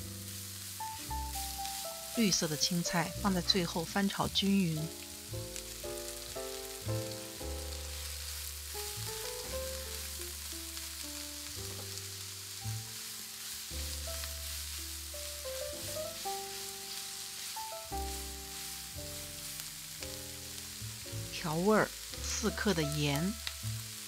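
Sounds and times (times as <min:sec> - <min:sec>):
vegetables sizzling in hot oil: 0:00.0 - 0:24.0
spatula stirring in pan: 0:00.2 - 0:02.5, 0:07.6 - 0:22.8.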